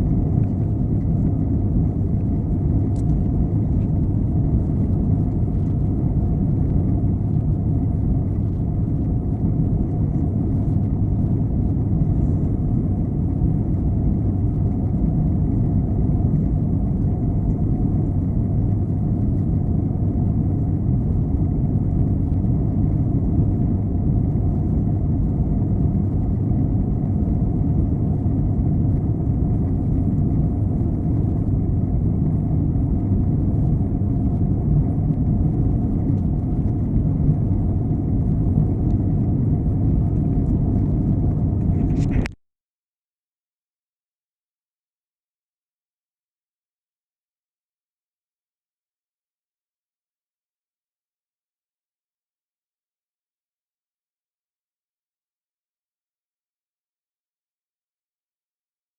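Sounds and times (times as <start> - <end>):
aircraft cabin rumble: 0.0 - 42.4.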